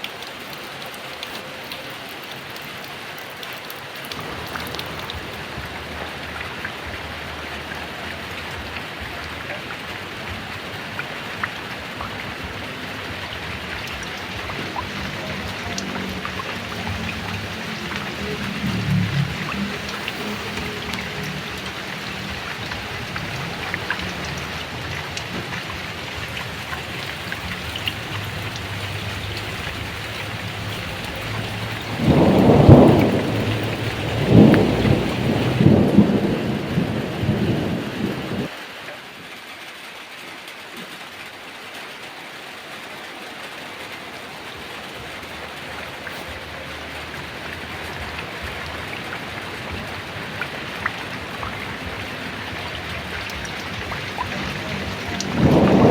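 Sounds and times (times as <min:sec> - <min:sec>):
heavy rain falling: 0:00.0 - 0:55.9
rolling thunder: 0:10.3 - 0:38.5, 0:47.7 - 0:55.9.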